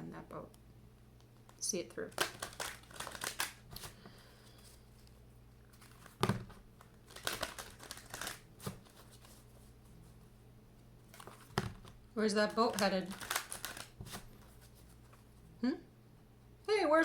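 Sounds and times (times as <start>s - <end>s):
low steady hum: 0.0s - 17.0s
cards rustling: 1.4s - 10.3s, 11.0s - 15.3s.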